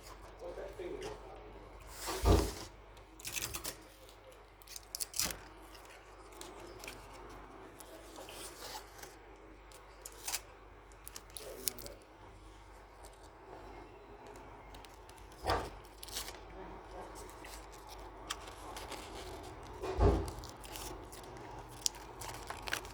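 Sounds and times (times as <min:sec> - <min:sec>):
scissors cutting paper: 0:17.0 - 0:22.9.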